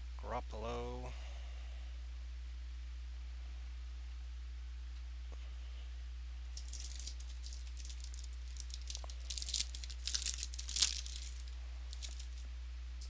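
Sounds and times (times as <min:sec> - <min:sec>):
low electrical hum: 0:00.0 - 0:13.0
card pack wrapper tearing: 0:06.6 - 0:12.4.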